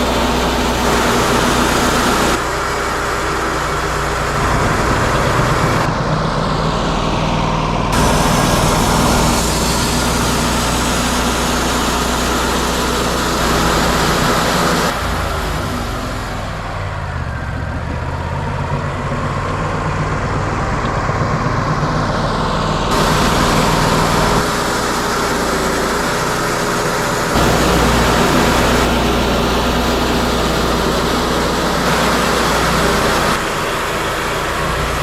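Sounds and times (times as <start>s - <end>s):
bandsaw mill sawing log: 0.0s - 17.0s, 18.3s - 35.0s.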